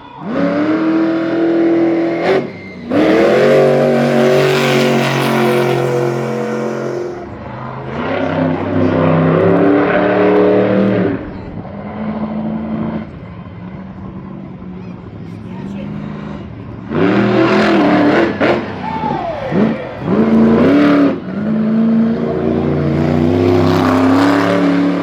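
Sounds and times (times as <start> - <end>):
engine revving hard: 0.2 - 11.2, 16.8 - 18.8, 19.5 - 25.0.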